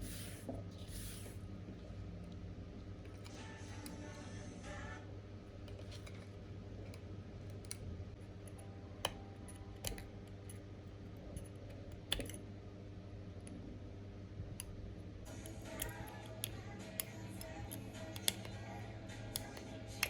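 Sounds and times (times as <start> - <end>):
steady low hum: 0.0 - 20.0
hand tools clicking and tapping: 15.3 - 18.6.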